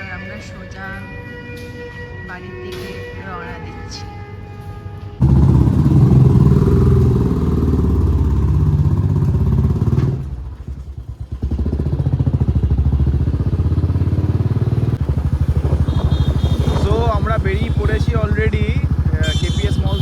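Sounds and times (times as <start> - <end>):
motorcycle engine chugging: 5.2 - 20.0.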